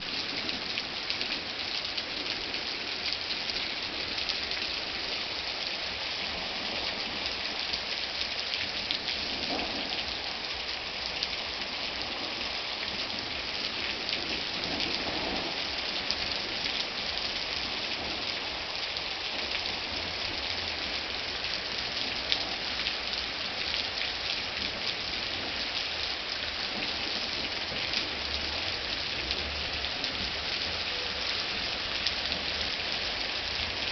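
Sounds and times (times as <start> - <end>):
rain on hard surfaces: 0.0 - 33.9
distant thunder rumbling: 9.1 - 10.5.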